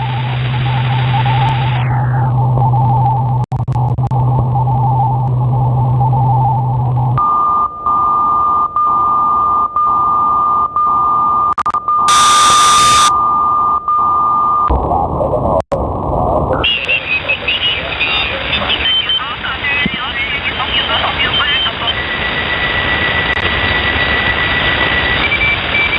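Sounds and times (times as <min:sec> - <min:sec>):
radio static hiss: 0:00.0 - 0:02.3, 0:12.1 - 0:13.1, 0:16.4 - 0:25.9
low hum: 0:00.0 - 0:07.3
high beep tone: 0:11.6 - 0:13.1.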